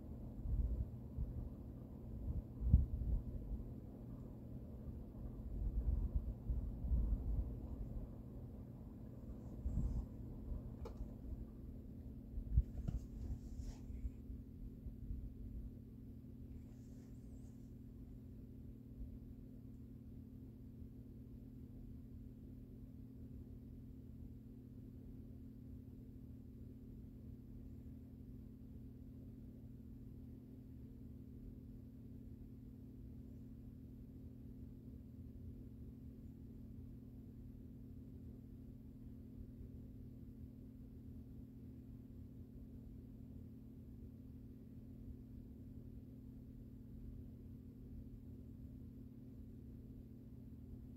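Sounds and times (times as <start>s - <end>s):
ceiling fan motor humming: 0.0s - 22.3s.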